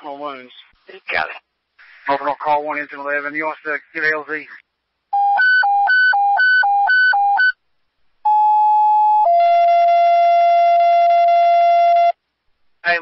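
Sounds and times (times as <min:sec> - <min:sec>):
two-tone radio page: 0:00.0 - 0:07.6, 0:08.3 - 0:13.0.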